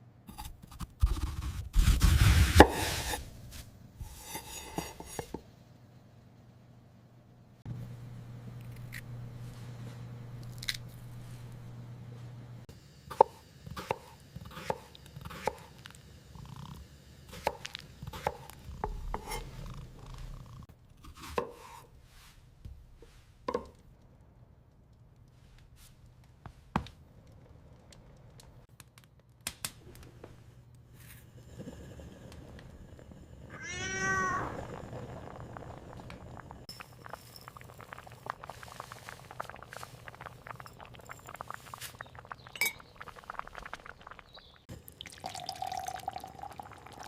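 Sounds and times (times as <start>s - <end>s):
low steady hum: 3.2s - 14.4s.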